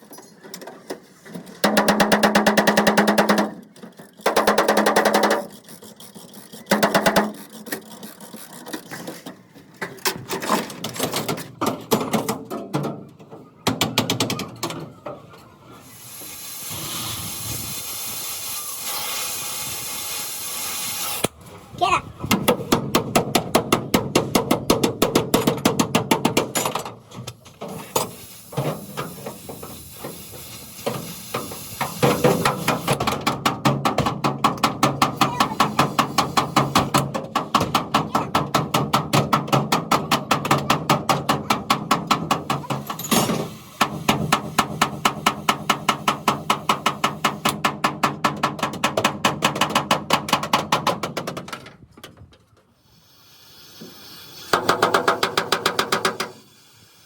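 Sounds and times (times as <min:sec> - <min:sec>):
hammering on sheet metal: 0:01.6 - 0:03.6, 0:32.0 - 0:42.9, 0:43.8 - 0:51.4, 0:54.5 - 0:56.4.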